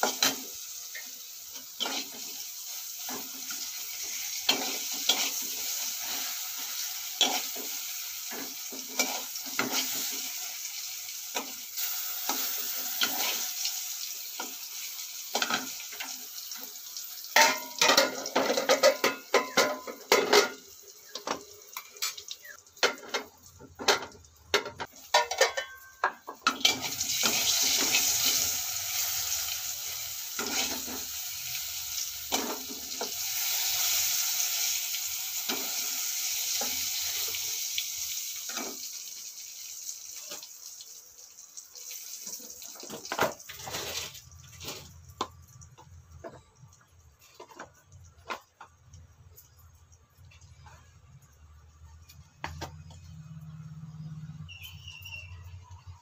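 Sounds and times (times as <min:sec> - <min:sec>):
frying sizzle: 0:00.0 - 0:56.0
metal spoon scraping a pan: 0:01.6 - 0:10.4, 0:11.3 - 0:13.5, 0:17.4 - 0:29.4, 0:30.3 - 0:31.2, 0:43.5 - 0:44.9.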